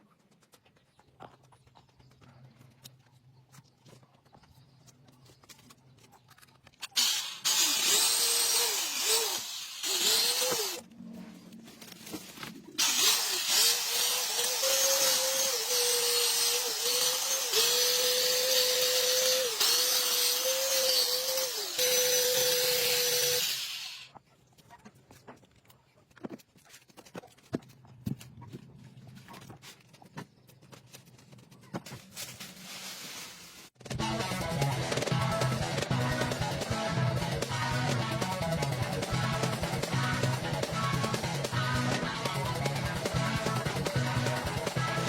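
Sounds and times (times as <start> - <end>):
electric chainsaw whining: 6.9 - 10.8, 12.8 - 24.1.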